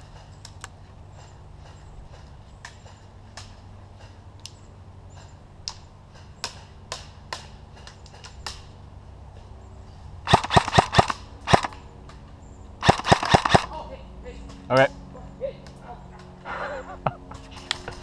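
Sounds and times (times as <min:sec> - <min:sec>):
airsoft gun shots: 0:10.3 - 0:11.8, 0:12.8 - 0:13.8.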